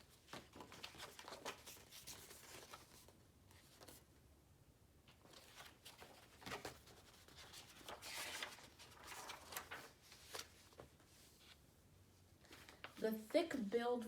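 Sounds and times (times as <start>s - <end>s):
book page turning: 5.2s - 11.6s.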